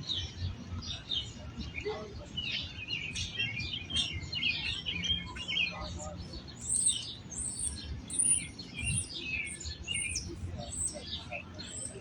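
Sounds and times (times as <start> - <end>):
songbirds chirping and trilling: 0.0 - 12.0.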